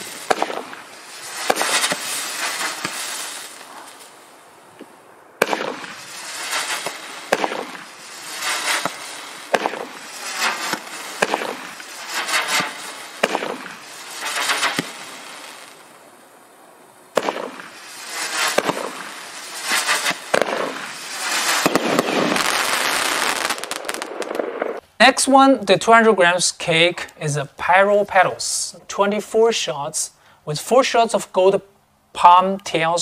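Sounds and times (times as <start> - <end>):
fireworks bang: 0.0 - 4.2, 4.8 - 15.8, 17.1 - 24.8
fireworks shots: 0.0 - 24.8
fireworks hissing: 0.0 - 25.3.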